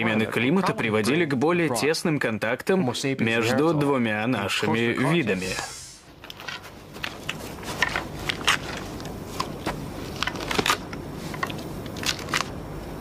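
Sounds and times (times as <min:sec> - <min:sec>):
low background noise: 0:00.0 - 0:13.0.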